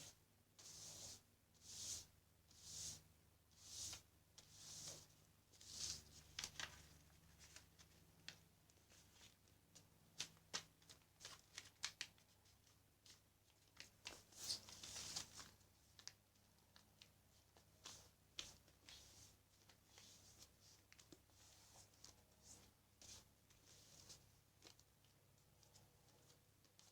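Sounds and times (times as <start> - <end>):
paper rustling: 5.6 - 24.8.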